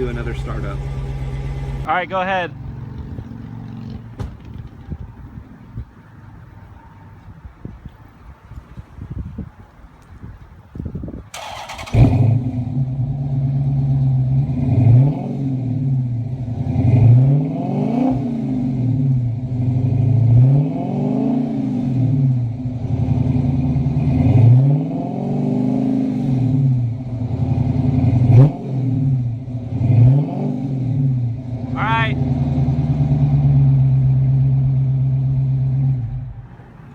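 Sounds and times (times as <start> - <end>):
car engine cranking on starter: 0.0 - 1.9, 11.3 - 13.0
car engine idling and revving: 0.0 - 9.0, 11.3 - 36.9.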